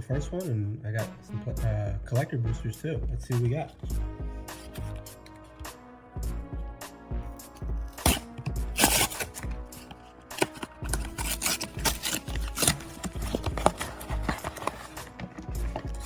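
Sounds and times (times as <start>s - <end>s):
background music with steady beat: 0.0s - 16.0s
wrapper and cards crinkling: 7.4s - 16.0s.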